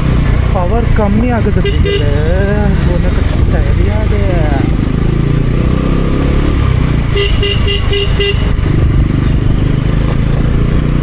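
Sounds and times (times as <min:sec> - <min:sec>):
motorcycle engine running: 0:00.0 - 0:11.0
vehicle horn tooting: 0:01.6 - 0:02.2, 0:07.1 - 0:08.6.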